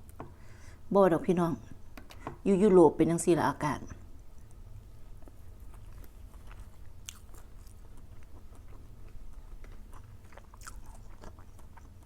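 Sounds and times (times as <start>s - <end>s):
steady low hum: 0.0s - 12.0s
person chewing food: 4.3s - 12.0s.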